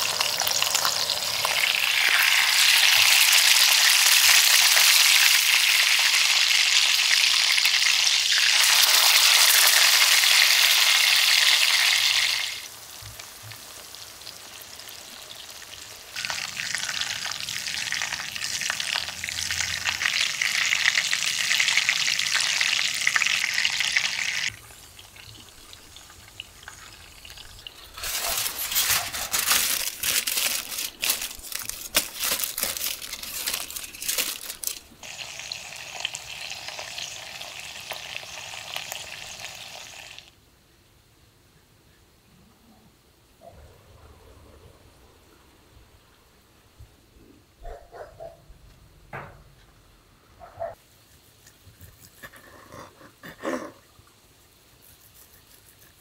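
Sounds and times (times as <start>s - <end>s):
steak sizzling in oil: 0.0s - 19.0s, 35.0s - 40.3s
vegetables sizzling in pan: 0.0s - 31.6s, 32.2s - 40.3s.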